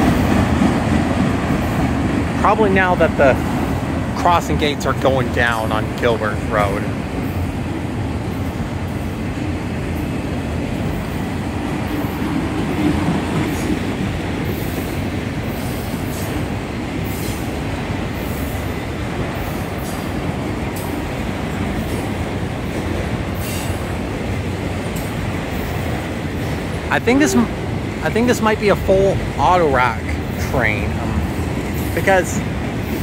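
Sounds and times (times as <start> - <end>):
freight train wheels rumbling: 0.0 - 33.0
light clicks on rails: 19.2 - 26.8.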